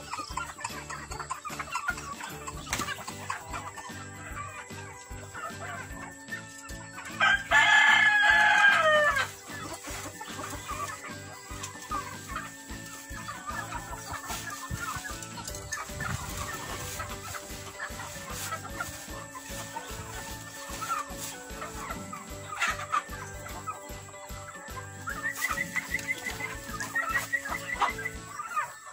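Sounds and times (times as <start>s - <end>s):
hens clucking: 0.0s - 28.9s
rooster crowing: 7.2s - 9.3s.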